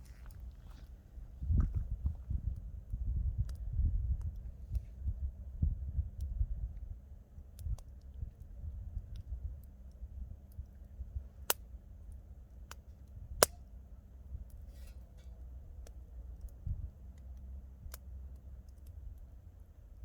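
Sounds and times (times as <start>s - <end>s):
campfire crackling and popping: 7.3s - 13.7s, 15.8s - 20.0s.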